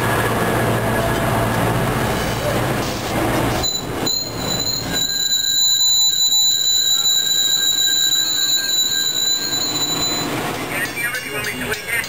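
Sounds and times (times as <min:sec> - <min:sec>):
rumble of rail cars: 0:00.0 - 0:12.0
high-pitched wheel squeal: 0:03.6 - 0:10.4.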